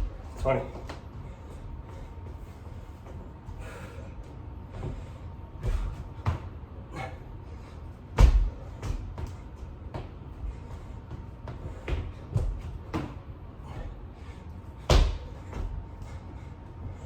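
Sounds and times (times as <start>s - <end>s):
hands and feet thudding on floor: 14.8s - 16.0s.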